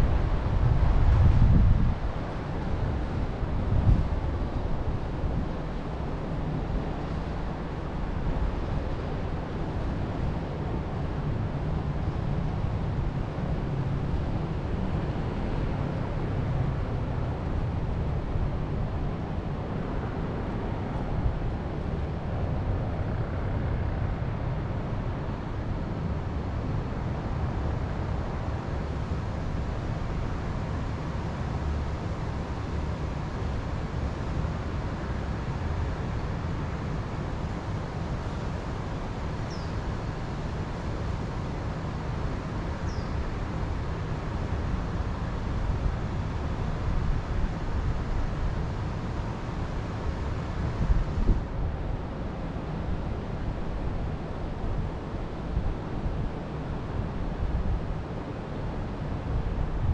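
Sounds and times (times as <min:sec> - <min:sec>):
wind buffeting microphone: 0:00.0 - 0:24.6, 0:41.9 - 0:58.0.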